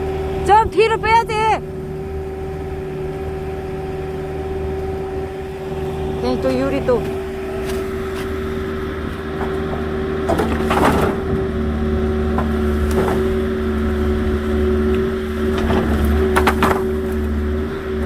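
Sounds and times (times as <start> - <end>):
excavator engine running: 0.0 - 18.0
logs cracking and splintering: 7.0 - 18.0.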